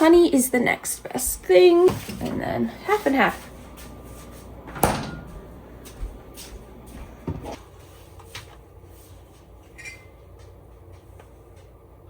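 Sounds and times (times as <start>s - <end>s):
kitchen knocks: 4.7s - 6.0s.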